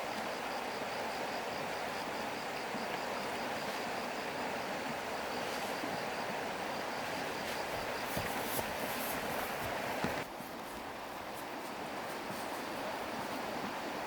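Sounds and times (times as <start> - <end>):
insect chirping: 0.0 - 10.2
steady rushing hiss: 0.0 - 14.0.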